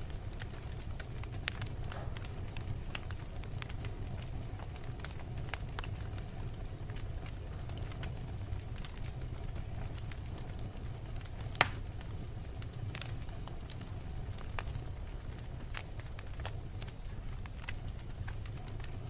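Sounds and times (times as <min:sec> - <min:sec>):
logs crackling: 0:00.0 - 0:19.0
low rumble of flames: 0:00.0 - 0:19.0
loud pop from fire: 0:01.4 - 0:03.2, 0:11.3 - 0:11.9.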